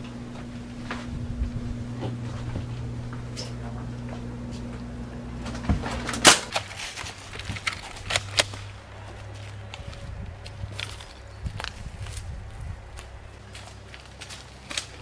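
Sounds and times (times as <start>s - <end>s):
steady low hum: 0.0s - 15.0s
sharp cracks: 6.1s - 8.8s.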